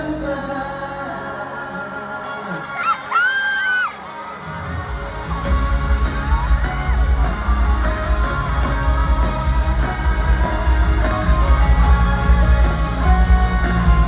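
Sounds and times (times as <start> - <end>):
loud live band music: 2.4 - 14.0.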